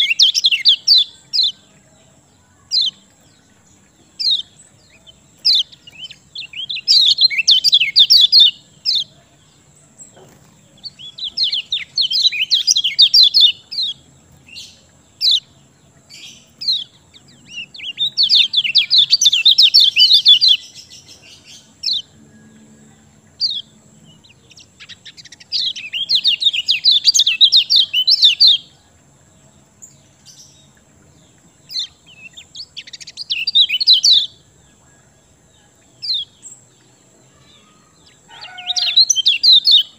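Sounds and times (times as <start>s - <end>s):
bird call notes: 0.0s - 1.7s, 37.4s - 39.9s
songbird chattering song: 0.0s - 39.9s.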